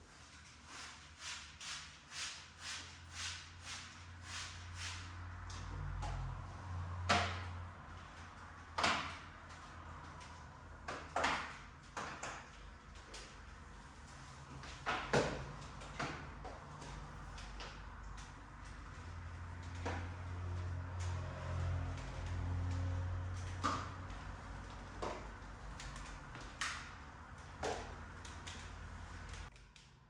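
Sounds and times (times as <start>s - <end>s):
knocks and clicks of handled objects: 7.0s - 13.6s, 14.2s - 30.0s.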